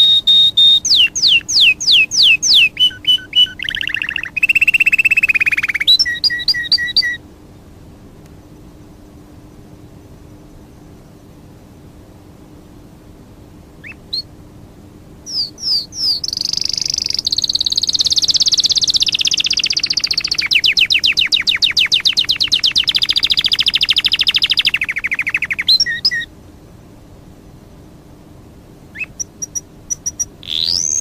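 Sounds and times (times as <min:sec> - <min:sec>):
songbird singing trill: 0:00.0 - 0:07.7, 0:08.7 - 0:11.5, 0:13.8 - 0:14.4, 0:15.2 - 0:26.3, 0:28.8 - 0:31.0.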